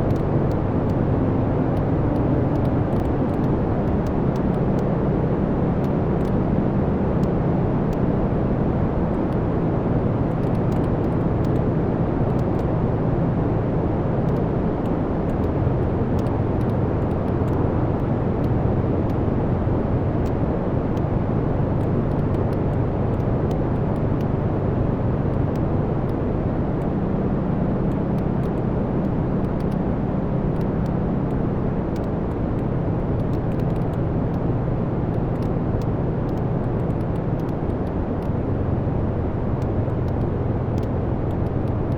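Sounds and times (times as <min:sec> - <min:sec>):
rumble of fire flames: 0:00.0 - 0:41.9.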